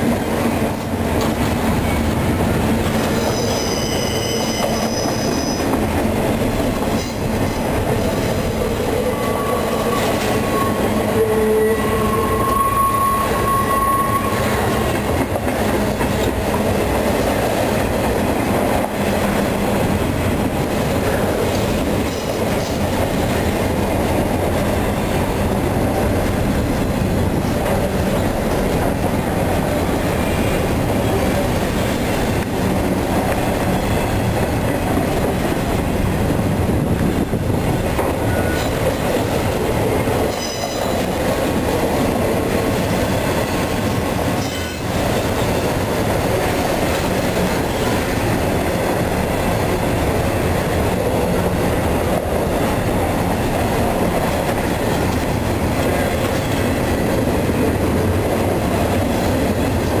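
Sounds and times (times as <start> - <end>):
train wheels clattering on rails: 0.0 - 11.2, 13.4 - 60.0
high wheel squeals: 3.1 - 5.8, 9.1 - 14.7.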